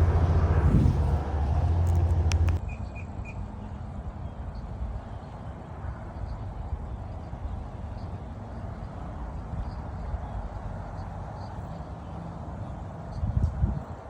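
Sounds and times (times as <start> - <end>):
low rumble: 0.0 - 2.6
sharp clicks: 1.8 - 2.6.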